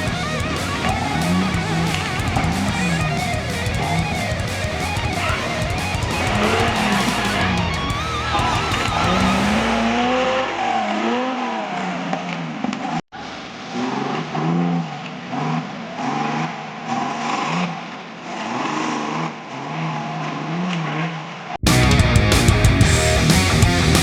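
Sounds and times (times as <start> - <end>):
engine revving: 0.0 - 11.6, 21.7 - 24.0.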